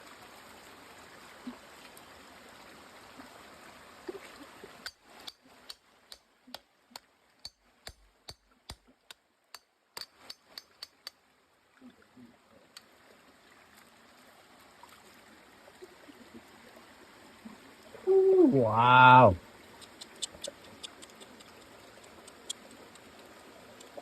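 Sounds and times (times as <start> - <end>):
water running: 18.0 - 21.2.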